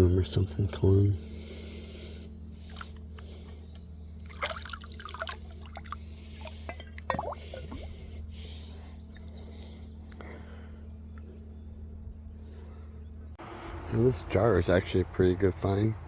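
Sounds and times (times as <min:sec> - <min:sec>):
water dripping and trickling: 0:04.2 - 0:07.8.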